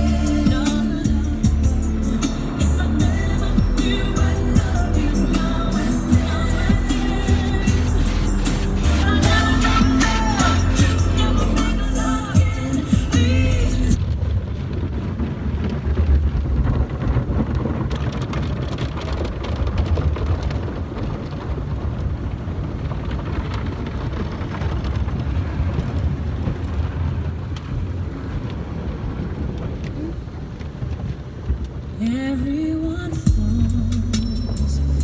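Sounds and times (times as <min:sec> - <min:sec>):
car wash water spraying on car: 0:01.8 - 0:14.0.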